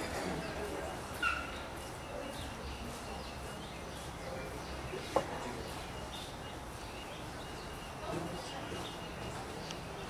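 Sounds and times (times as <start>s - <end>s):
faint bird chirping: 0.3s - 10.0s.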